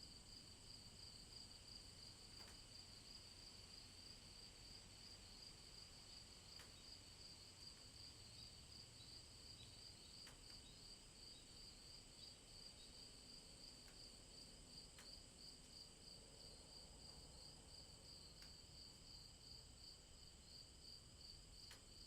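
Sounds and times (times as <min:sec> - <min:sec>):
raindrop ticks: 0:02.3 - 0:02.6, 0:06.6 - 0:06.8, 0:10.2 - 0:10.6, 0:13.8 - 0:14.0.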